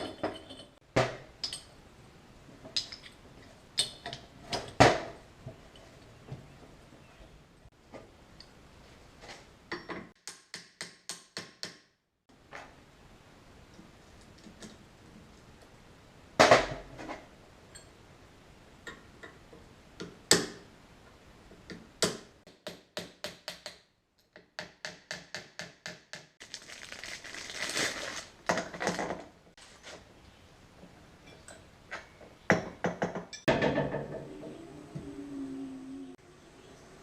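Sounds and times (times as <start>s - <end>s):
metal tools clanking: 0.0s - 0.8s
scraping and rustling: 26.7s - 30.3s.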